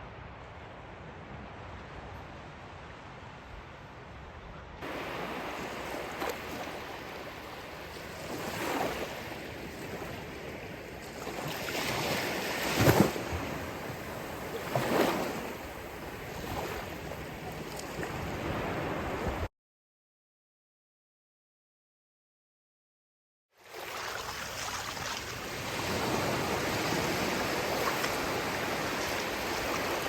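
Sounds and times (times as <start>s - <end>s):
waves breaking on shore: 4.8s - 19.5s, 23.6s - 30.0s.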